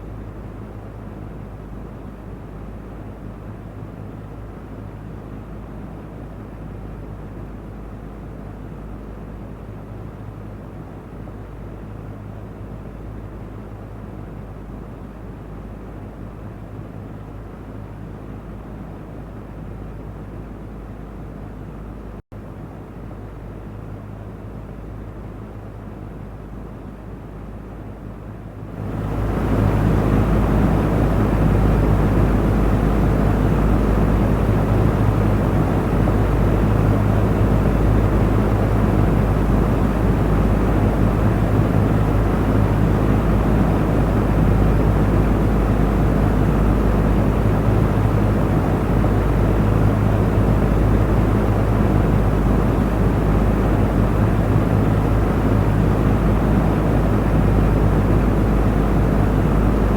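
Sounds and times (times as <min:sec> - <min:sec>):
electric fan running: 0:28.7 - 0:59.9.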